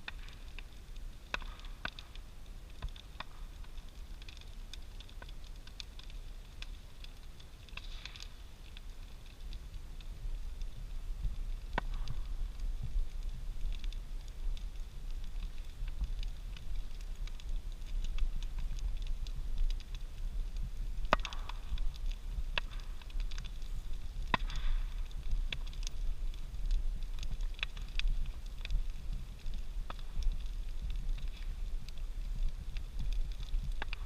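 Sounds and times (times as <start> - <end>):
bonfire crackling and popping: 0.0 - 34.0.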